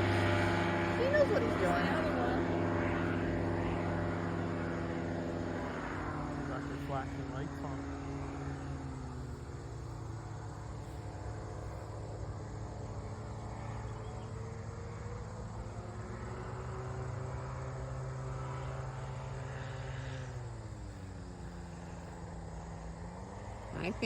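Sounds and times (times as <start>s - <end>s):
small aircraft engine droning: 0.0s - 24.0s.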